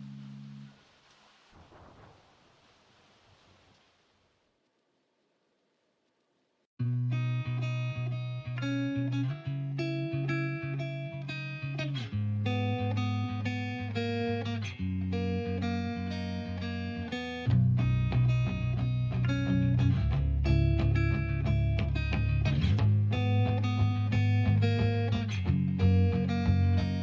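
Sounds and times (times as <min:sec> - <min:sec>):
plucked guitar music: 0:00.0 - 0:00.7, 0:06.8 - 0:27.0.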